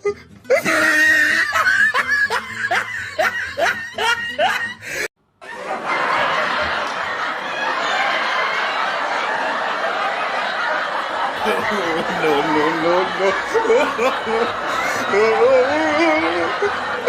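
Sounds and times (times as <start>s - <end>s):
person laughing: 0.0s - 5.6s, 11.1s - 17.0s.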